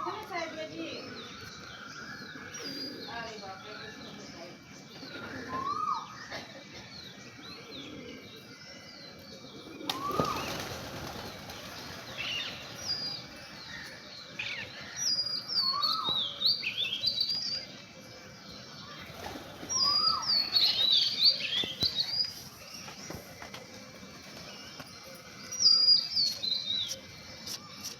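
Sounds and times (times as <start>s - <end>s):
birds chirping: 0.0s - 27.9s
rising and falling bird calls: 4.9s - 17.8s, 18.8s - 23.6s
wings flapping: 9.8s - 13.2s, 19.0s - 20.9s.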